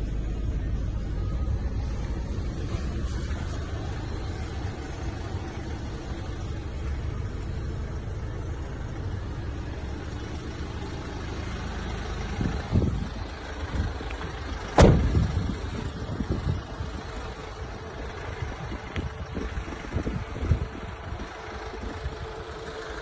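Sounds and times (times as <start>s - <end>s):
diesel engine idling: 0.0s - 23.0s
sharp thump: 14.8s - 15.4s.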